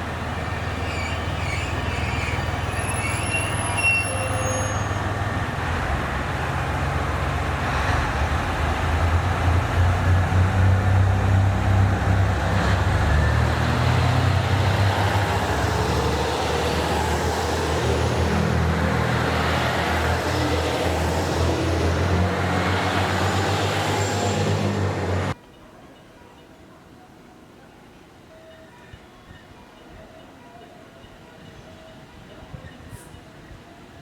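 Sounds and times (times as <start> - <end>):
train low hum: 0.0 - 25.4.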